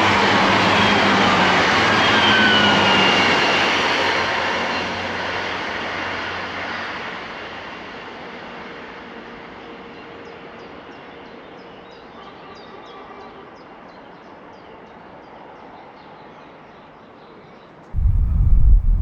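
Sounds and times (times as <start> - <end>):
passing vehicle rumble: 18.0 - 19.0.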